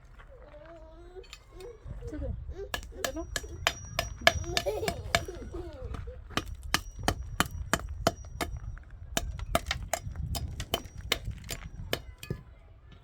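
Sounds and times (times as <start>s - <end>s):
hammer blows: 2.7s - 5.6s.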